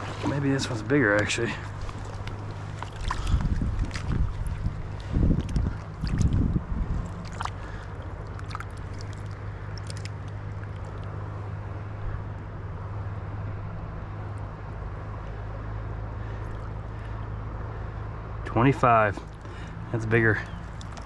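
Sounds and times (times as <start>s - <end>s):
river water rushing: 0.0s - 6.3s, 7.0s - 11.0s
handling clicks and knocks: 20.4s - 21.0s.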